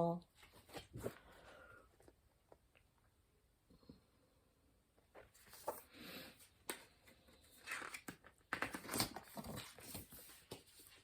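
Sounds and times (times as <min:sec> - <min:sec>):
book pages rustling and turning: 0:00.4 - 0:01.4, 0:05.0 - 0:11.0.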